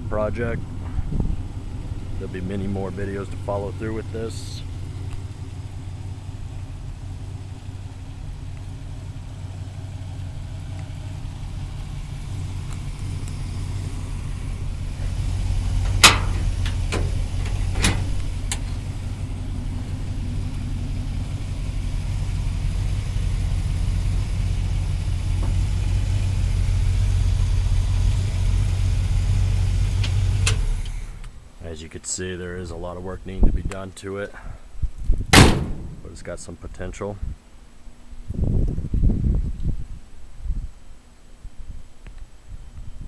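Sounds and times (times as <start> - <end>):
engine idling: 0.0 - 31.8.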